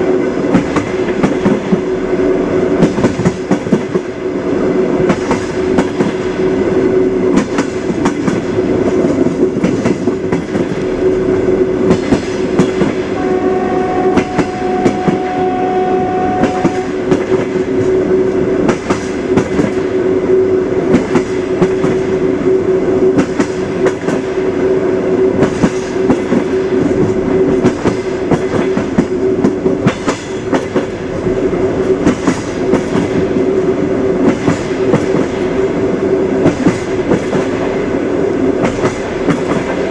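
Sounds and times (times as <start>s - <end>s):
train rumbling on rails: 0.0s - 39.9s
wheels clickety-clack: 2.8s - 4.1s, 5.1s - 6.3s, 7.3s - 10.9s, 18.6s - 19.9s, 20.9s - 22.1s, 23.1s - 24.3s, 25.4s - 31.0s, 31.9s - 33.4s, 34.2s - 35.6s, 36.4s - 37.8s, 38.6s - 39.9s
train horn: 13.0s - 17.4s.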